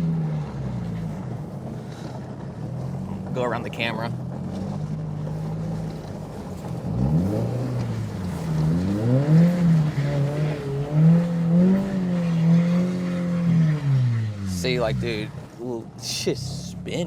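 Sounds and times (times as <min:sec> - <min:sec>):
car engine revving: 0:00.0 - 0:17.0
wheels spinning on ice: 0:04.2 - 0:11.6.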